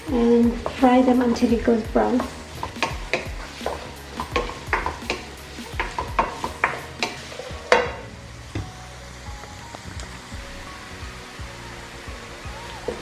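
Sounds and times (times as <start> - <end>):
onions sizzling in oil: 0.0 - 13.0
spatula scraping pan: 0.4 - 8.1.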